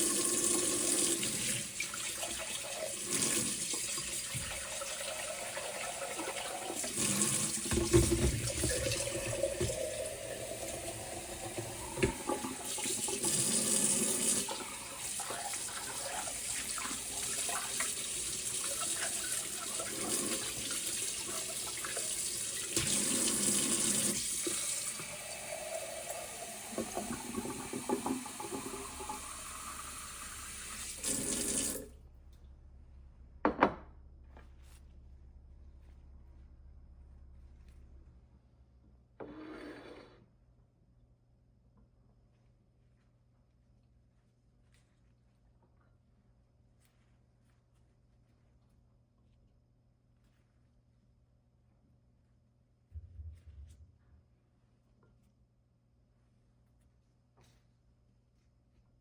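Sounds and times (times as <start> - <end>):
tap water running into sink: 0.0 - 31.9.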